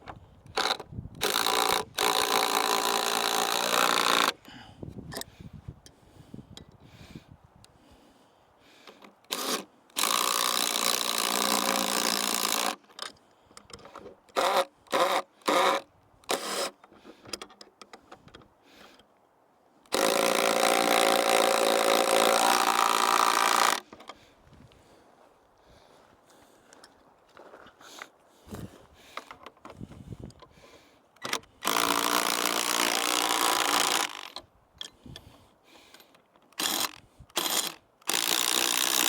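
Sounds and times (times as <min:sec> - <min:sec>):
power drill running: 0:00.5 - 0:04.4, 0:09.3 - 0:12.8, 0:19.9 - 0:23.8, 0:31.2 - 0:34.3, 0:36.6 - 0:39.0.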